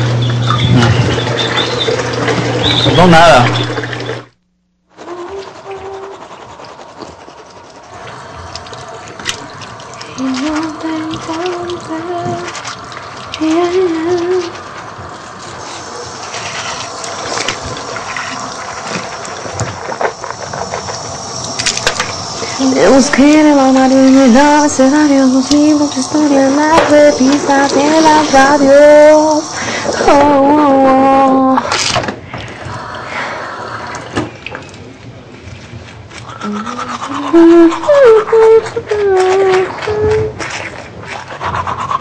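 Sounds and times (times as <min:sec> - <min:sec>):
water running from a tap: 0:00.0 - 0:04.3, 0:08.1 - 0:31.9.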